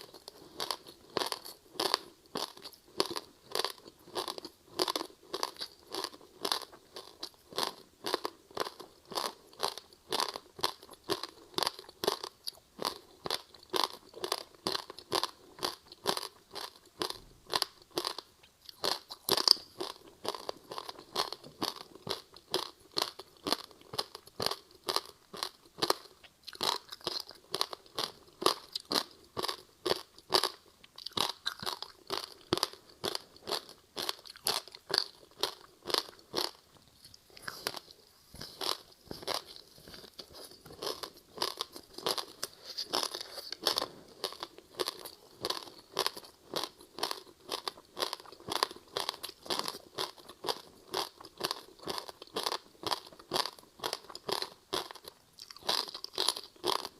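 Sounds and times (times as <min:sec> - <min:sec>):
crunchy ice being chewed: 0:00.0 - 0:56.9.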